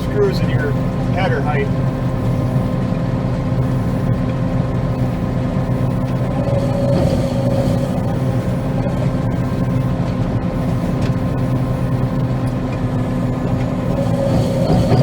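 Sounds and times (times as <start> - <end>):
combine harvester drone: 0.0 - 15.0
constant machine tone: 0.0 - 15.0.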